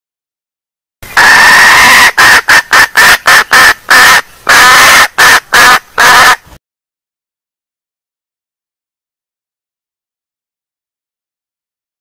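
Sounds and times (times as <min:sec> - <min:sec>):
junglefowl hen calling: 0:01.0 - 0:06.5.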